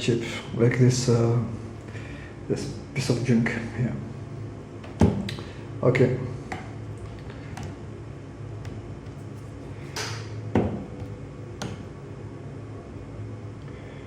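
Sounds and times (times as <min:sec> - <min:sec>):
steady low hum: 0:00.0 - 0:14.0
hard objects knocking and clattering: 0:08.6 - 0:11.9.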